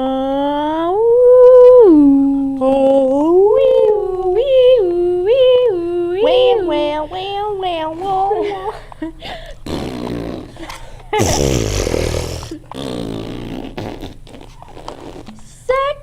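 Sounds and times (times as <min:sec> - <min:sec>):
person humming and wailing: 0:11.2 - 0:12.9.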